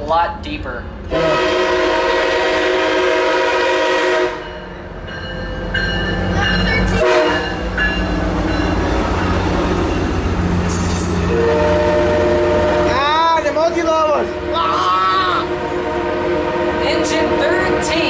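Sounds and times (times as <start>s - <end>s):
train rumbling past: 0.0s - 18.0s
train horn chord: 1.1s - 4.6s, 7.0s - 7.7s, 10.8s - 13.2s, 14.2s - 18.0s.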